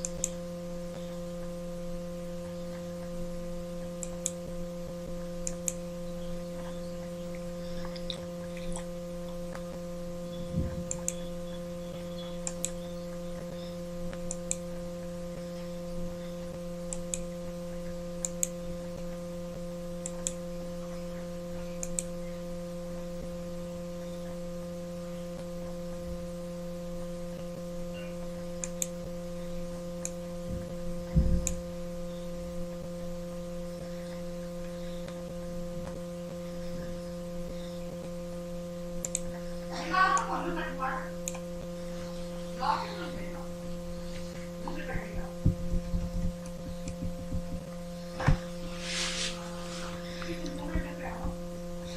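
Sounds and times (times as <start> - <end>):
sharp clicks: 0.0 - 0.4, 4.0 - 4.4, 5.4 - 5.8, 10.9 - 11.2, 12.4 - 12.8, 20.0 - 20.4, 21.8 - 22.1, 28.6 - 28.9, 39.0 - 39.3
electrical hum: 0.0 - 51.9
low thumps: 30.4 - 31.6, 45.2 - 48.6.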